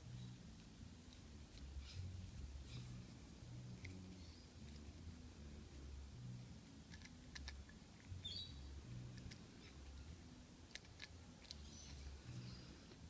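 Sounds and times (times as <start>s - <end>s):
bird chirping: 0.0s - 0.5s, 1.6s - 3.1s, 3.9s - 4.8s, 8.0s - 10.2s, 10.9s - 13.0s.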